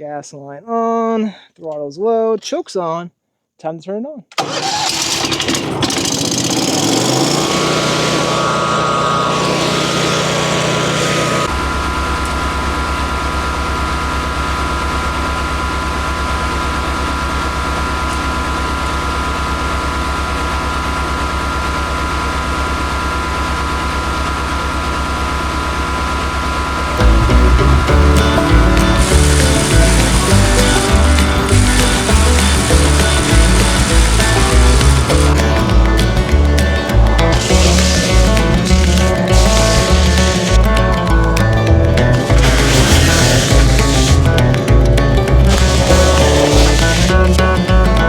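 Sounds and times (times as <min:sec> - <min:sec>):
wood chipper engine running: 0:04.4 - 0:48.0.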